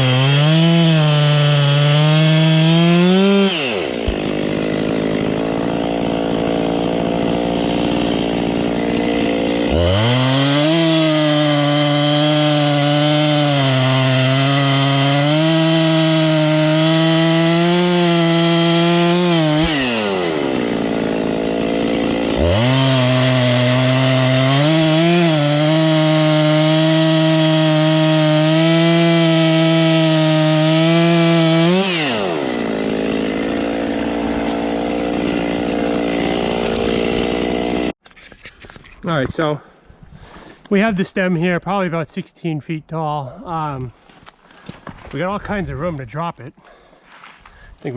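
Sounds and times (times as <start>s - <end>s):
chainsaw cutting wood: 0.0s - 38.0s
chainsaw idling: 0.0s - 38.0s.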